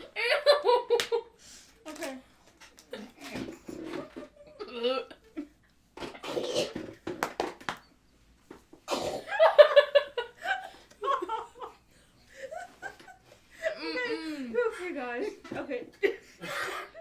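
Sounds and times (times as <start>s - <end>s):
girls laughing and giggling: 0.0s - 1.4s, 9.3s - 17.0s.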